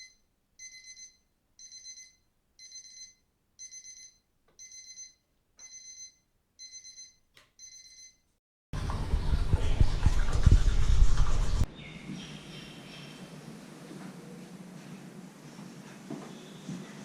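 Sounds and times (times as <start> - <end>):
electronic alarm beeping: 0.0 - 8.2.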